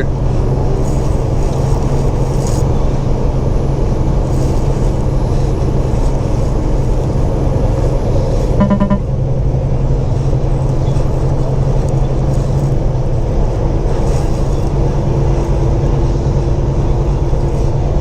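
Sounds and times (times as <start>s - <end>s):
truck engine and road noise: 0.0s - 18.0s
short pitched sound: 8.6s - 9.2s.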